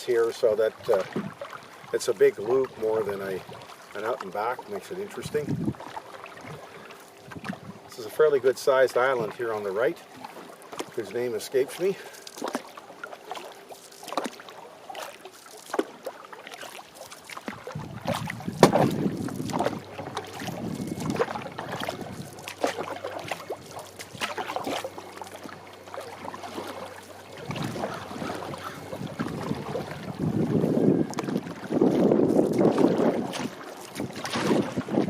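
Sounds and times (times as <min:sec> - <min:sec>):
canoe paddle splashing: 0:00.0 - 0:35.0
wind buffeting microphone: 0:05.2 - 0:05.8, 0:06.4 - 0:07.9, 0:17.5 - 0:24.4, 0:27.4 - 0:35.0.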